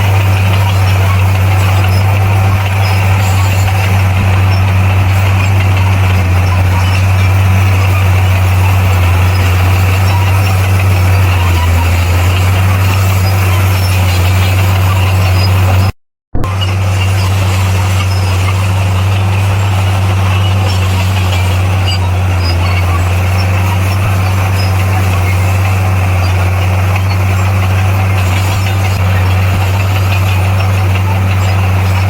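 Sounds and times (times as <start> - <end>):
bulldozer diesel engine running: 0.0 - 32.0.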